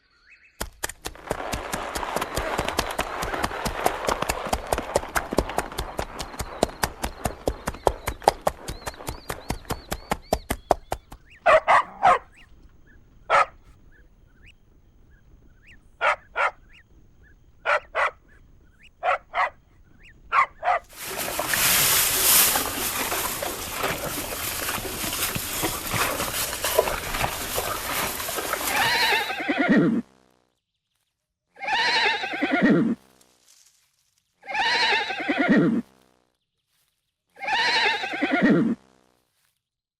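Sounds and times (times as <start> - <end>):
horse hooves galloping: 0.6 - 13.8, 20.4 - 30.1.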